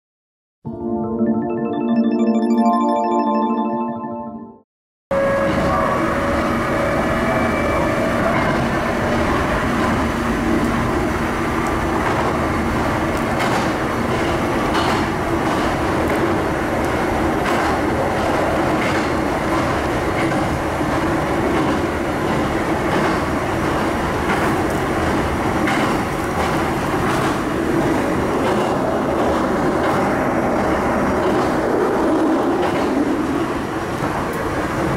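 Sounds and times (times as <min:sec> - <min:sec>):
rumble of wheels on rail: 0:05.2 - 0:34.9
wheels clacking over rail joints: 0:11.9 - 0:34.9.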